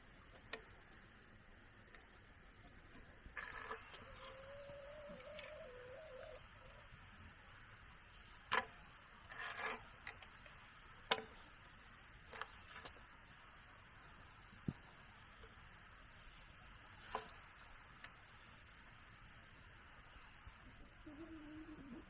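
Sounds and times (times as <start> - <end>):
faint wavering tone: 3.4 - 6.9.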